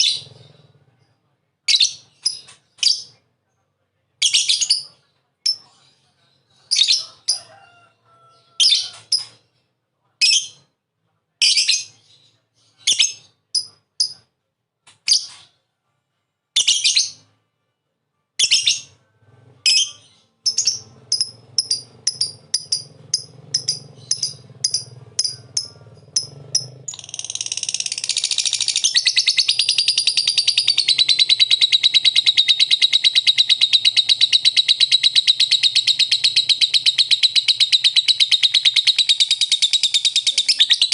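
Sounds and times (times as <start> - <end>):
lovebird chirping and chattering: 0.0 - 0.8, 1.7 - 3.2, 4.2 - 7.4, 8.6 - 9.4, 11.4 - 14.2, 16.6 - 17.2, 18.4 - 19.0, 19.6 - 40.9.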